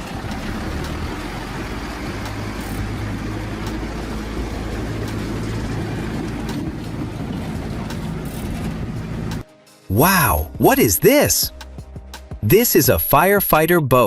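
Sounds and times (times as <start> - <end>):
road and traffic noise: 0.0 - 10.4
truck engine humming: 0.0 - 12.9.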